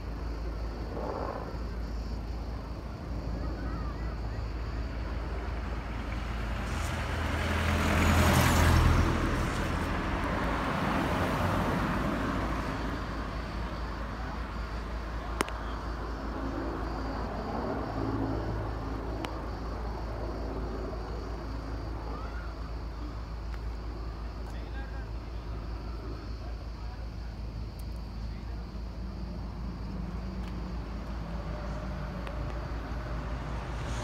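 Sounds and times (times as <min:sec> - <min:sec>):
steady low traffic rumble: 0:00.0 - 0:34.0
vehicle passing: 0:04.8 - 0:15.1, 0:29.1 - 0:34.0.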